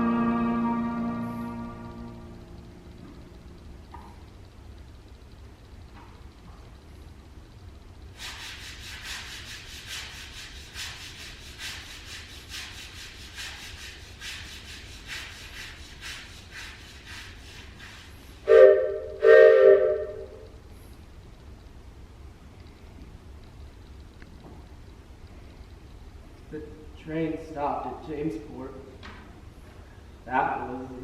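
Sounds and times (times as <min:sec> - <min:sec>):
train chime whistle blasts: 0:00.0 - 0:02.5, 0:18.5 - 0:20.4.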